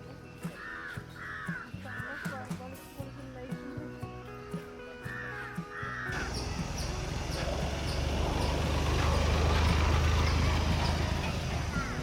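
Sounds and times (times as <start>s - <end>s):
crow-like caw: 0.6s - 2.3s, 5.1s - 6.3s
vehicle engine humming: 5.6s - 12.0s.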